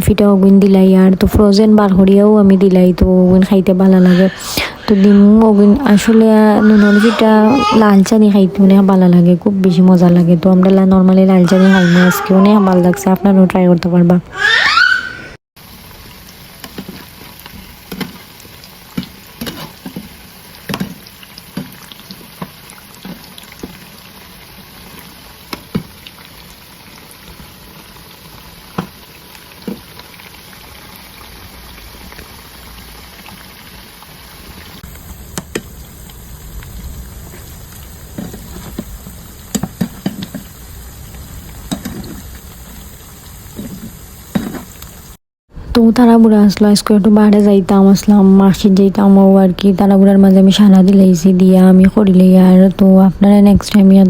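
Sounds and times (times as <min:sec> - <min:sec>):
food sizzling in hot oil: 0:15.6 - 0:45.2
oil popping and crackling: 0:15.6 - 0:45.2.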